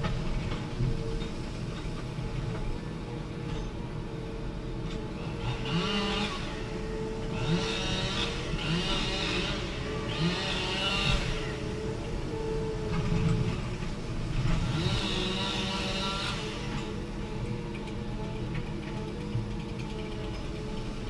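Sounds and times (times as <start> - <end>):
hydraulic whine: 0.0 - 21.0
diesel engine revving: 5.2 - 17.2.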